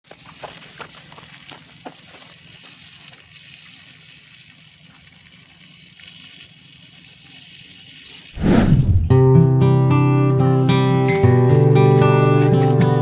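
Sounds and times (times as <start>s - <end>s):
steady rain falling: 0.2s - 3.2s.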